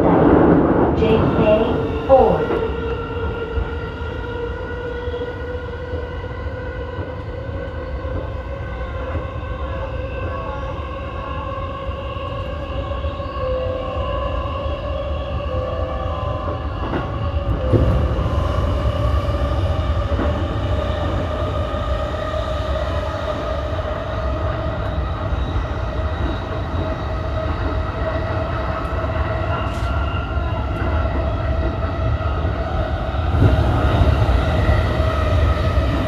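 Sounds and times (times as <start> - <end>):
train traction motor whine: 1.0 - 36.0
wheels rumbling on rail: 14.4 - 36.0.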